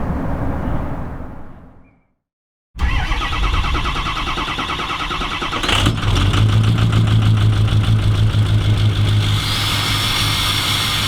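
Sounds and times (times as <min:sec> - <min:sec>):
engine cranking and idling: 0:02.8 - 0:11.0.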